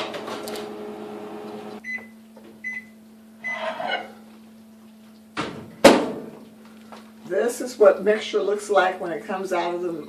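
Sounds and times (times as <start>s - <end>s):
microwave oven hum: 0.0s - 10.0s
microwave beeps: 1.6s - 3.7s.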